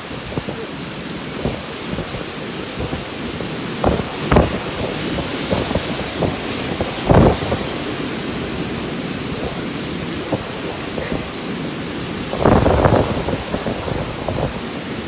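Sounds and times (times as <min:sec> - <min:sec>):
loud thunder bursts: 0:00.0 - 0:15.0
rain: 0:00.0 - 0:15.0
wind: 0:00.0 - 0:15.0.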